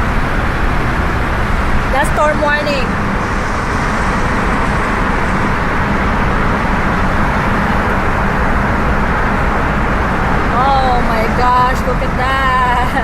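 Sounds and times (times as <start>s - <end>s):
road noise inside car: 0.0s - 13.0s
wind through open windows: 0.0s - 13.0s.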